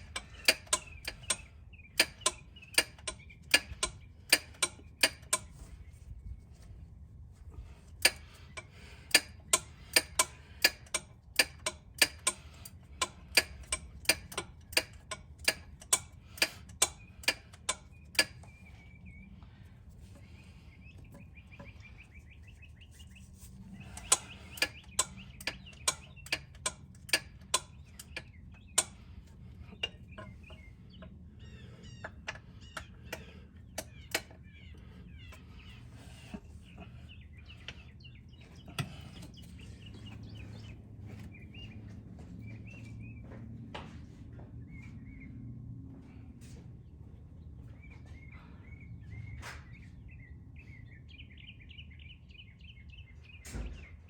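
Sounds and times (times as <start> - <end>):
sharp clicks: 0.0 - 5.6, 8.0 - 18.6, 23.9 - 31.1, 32.0 - 35.4
birds chirping: 0.0 - 54.0.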